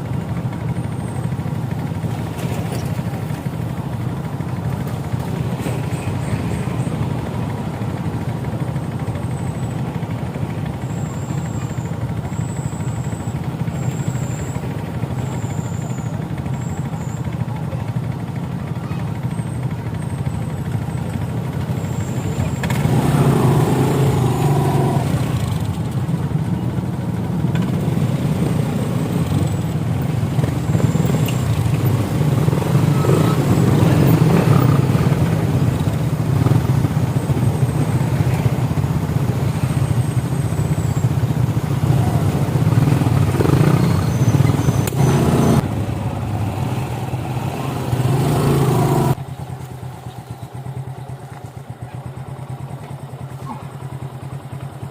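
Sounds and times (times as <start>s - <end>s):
motorcycle engine hum: 0.0s - 54.9s
road noise rushing: 21.4s - 51.8s.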